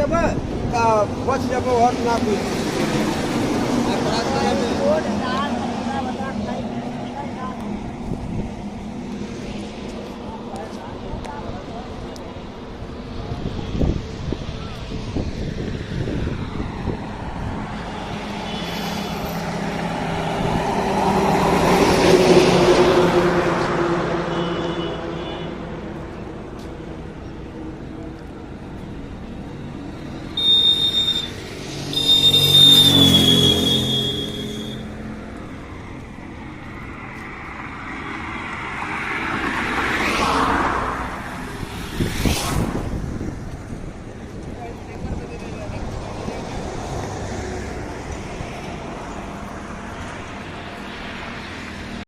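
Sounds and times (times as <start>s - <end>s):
road traffic: 0.0s - 52.0s
shrill high steady tone: 30.4s - 34.8s.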